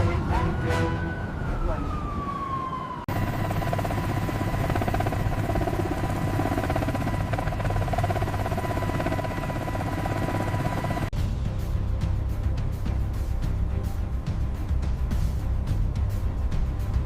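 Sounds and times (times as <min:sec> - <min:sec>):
engine drone with high whine: 0:03.0 - 0:11.1.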